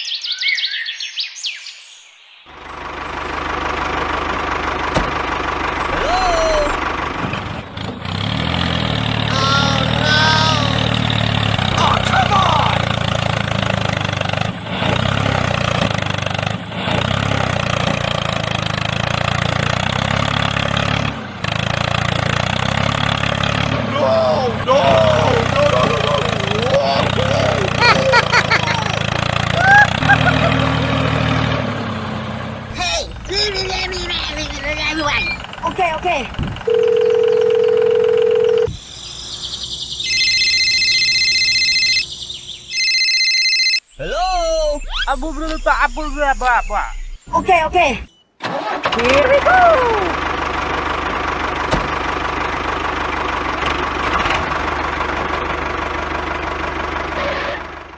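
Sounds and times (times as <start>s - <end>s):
small tractor engine running: 2.5s - 38.8s, 39.6s - 43.3s, 48.4s - 57.9s
low electronic beep: 40.0s - 42.1s, 42.7s - 47.3s.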